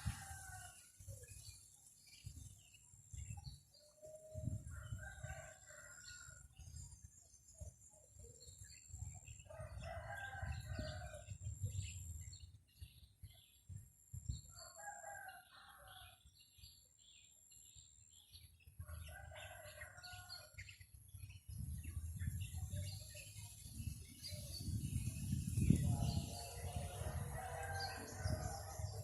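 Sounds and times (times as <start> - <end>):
wind rumble on microphone: 0.0 - 29.0
rooster crowing: 26.0 - 28.9.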